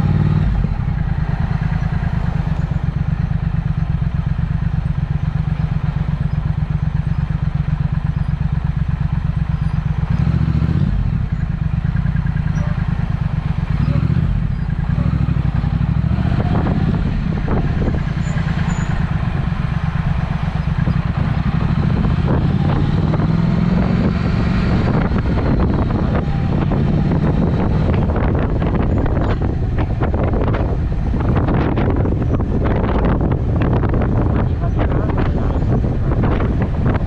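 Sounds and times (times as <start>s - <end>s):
motorcycle engine running: 0.0s - 37.0s
exhaust crackles: 12.4s - 37.0s.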